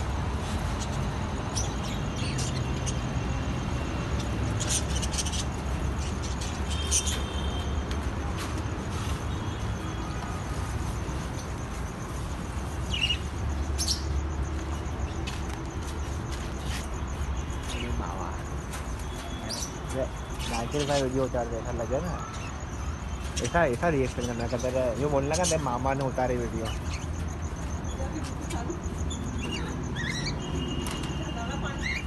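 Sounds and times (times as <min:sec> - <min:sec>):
road traffic rumble: 0:00.0 - 0:32.0
high bird chirps: 0:04.0 - 0:07.8, 0:12.7 - 0:15.4, 0:16.3 - 0:32.0.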